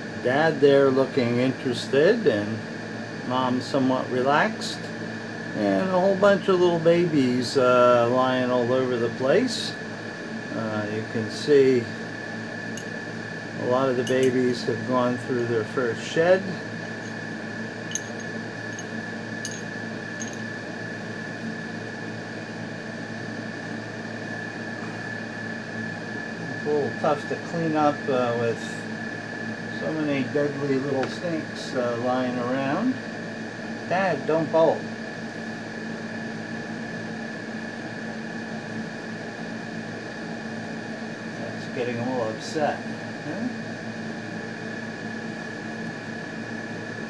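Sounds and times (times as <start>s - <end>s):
background hum and hiss: 0.0s - 47.0s
faint high whine: 0.0s - 47.0s
high whine: 10.4s - 33.0s.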